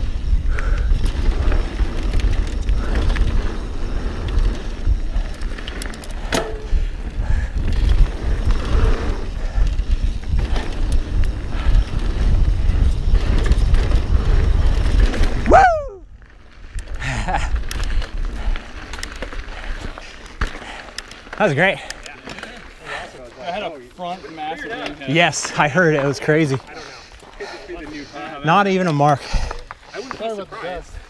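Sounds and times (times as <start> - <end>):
wind rumble on microphone: 0.0 - 20.1
bike rattle and tyre noise: 0.0 - 31.0.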